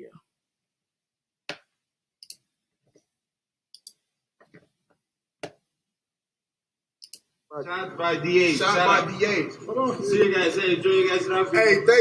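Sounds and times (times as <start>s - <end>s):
computer mouse clicking: 2.2s - 2.4s, 3.8s - 4.0s, 7.0s - 7.3s.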